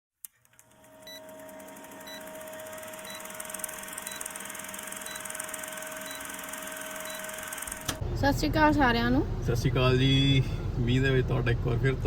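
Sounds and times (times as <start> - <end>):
steady hum: 0.6 - 9.6
short high beeps: 3.0 - 3.4, 4.0 - 4.4, 5.0 - 7.4.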